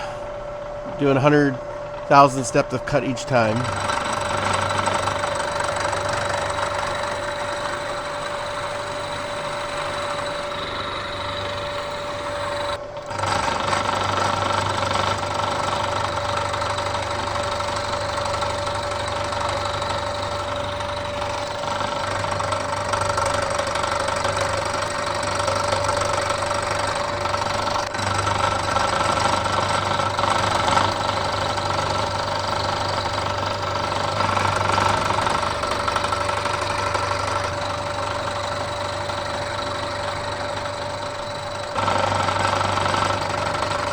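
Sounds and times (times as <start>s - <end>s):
milling machine motor whine: 0.0s - 43.9s
end mill grinding metal: 0.8s - 43.9s.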